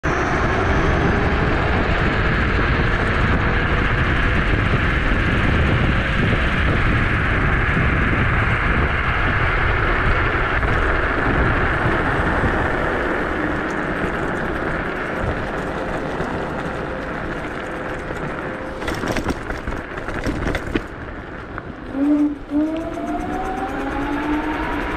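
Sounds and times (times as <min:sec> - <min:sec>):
wind and road noise: 0:00.0 - 0:24.9
electric motor whine: 0:21.8 - 0:24.9.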